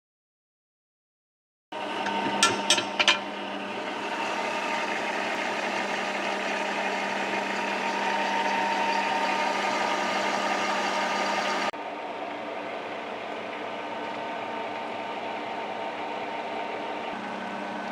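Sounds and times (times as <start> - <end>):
lathe motor humming: 3.6 - 11.7.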